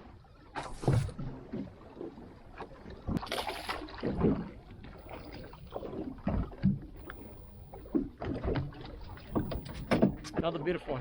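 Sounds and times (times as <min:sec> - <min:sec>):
knocks and thumps on a boat: 0:02.9 - 0:10.6.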